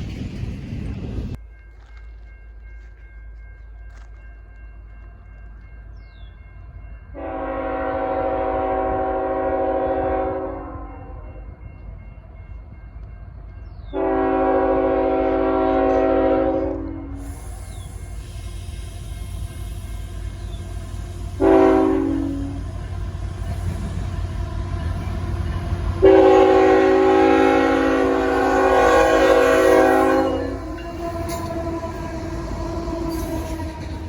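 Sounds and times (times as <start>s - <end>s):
train rumble: 0.0s - 34.0s
locomotive air horn blasts: 7.2s - 11.1s, 13.9s - 17.7s, 19.2s - 34.0s.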